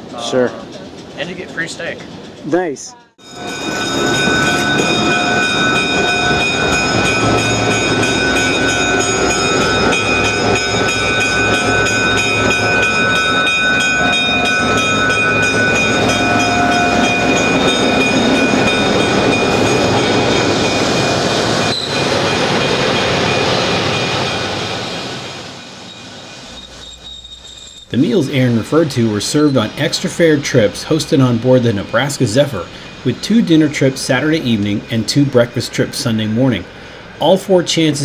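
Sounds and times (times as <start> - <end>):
train rumbling on rails: 0.0 - 38.0
high whining tones: 3.2 - 36.6.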